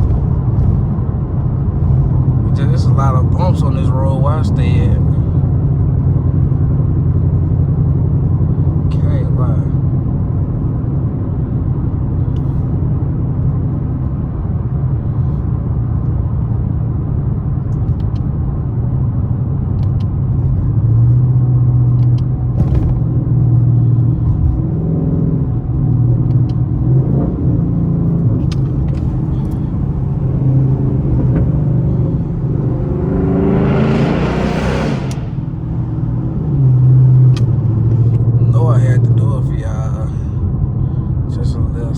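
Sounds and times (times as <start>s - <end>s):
car engine rumble: 0.0s - 41.9s.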